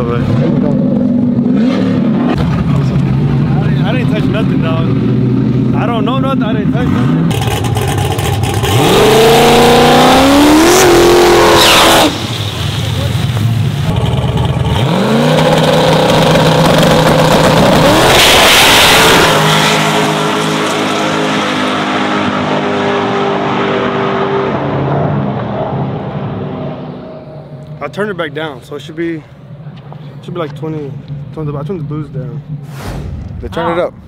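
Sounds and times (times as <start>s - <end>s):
truck engine accelerating hard: 0.0s - 27.7s
loud rushing burst: 32.6s - 34.0s.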